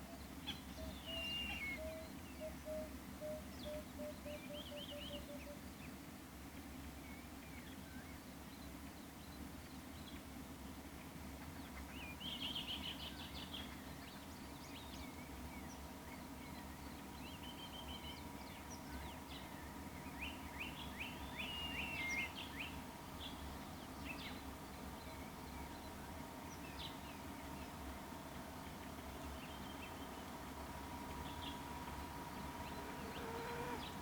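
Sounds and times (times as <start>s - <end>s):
low steady hum: 0.0s - 34.0s
birds chirping: 15.3s - 34.0s.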